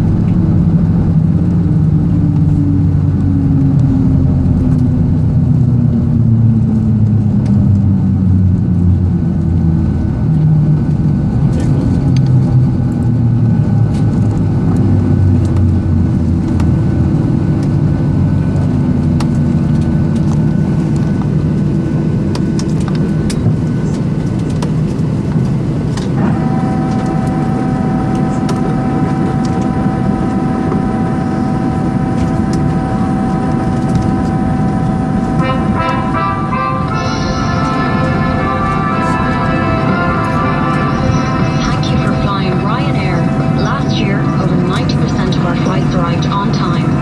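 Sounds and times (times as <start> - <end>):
aircraft engine rumble: 0.0 - 47.0
high-pitched whine: 22.8 - 47.0.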